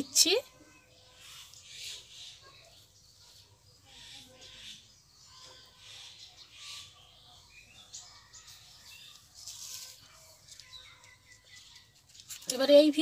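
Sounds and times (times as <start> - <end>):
faint bird chirps: 0.0 - 12.2.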